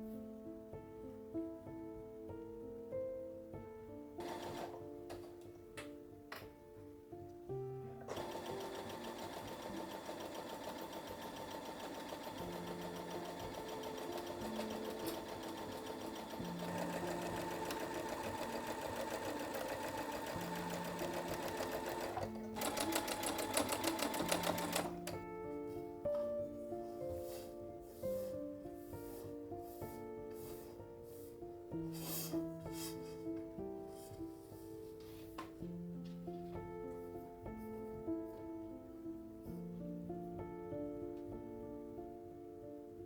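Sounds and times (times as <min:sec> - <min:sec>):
soft background music: 0:00.0 - 0:43.0
sewing machine stitching: 0:04.2 - 0:05.3, 0:08.1 - 0:25.2.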